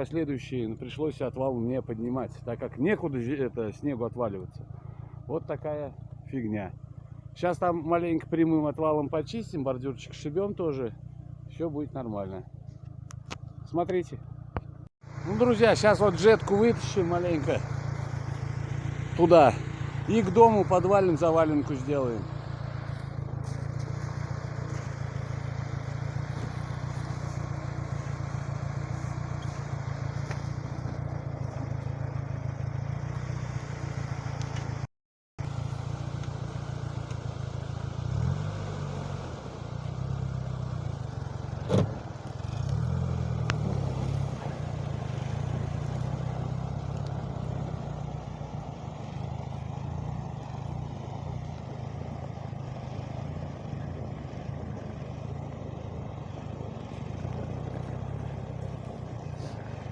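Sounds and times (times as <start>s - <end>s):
small tractor engine running: 12.5s - 59.9s.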